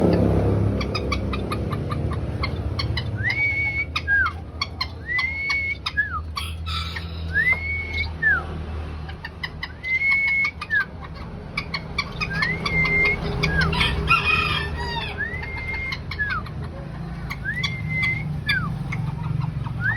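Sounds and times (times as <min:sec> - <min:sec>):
birds chirping: 0:00.0 - 0:19.9
bird two-part whistle: 0:09.8 - 0:10.8, 0:15.1 - 0:16.4.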